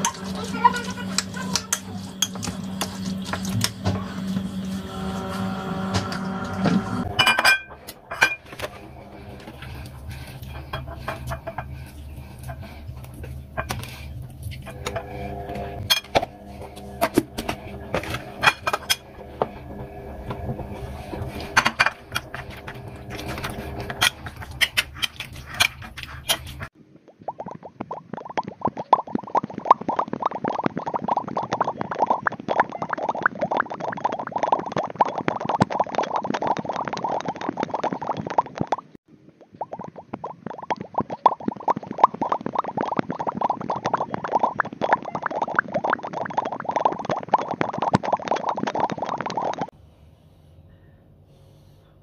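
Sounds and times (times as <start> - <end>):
utensils and dishes clattering: 0.0 - 19.6, 20.2 - 26.7
appliance humming: 0.0 - 26.7
crockery clinking: 7.2 - 8.5.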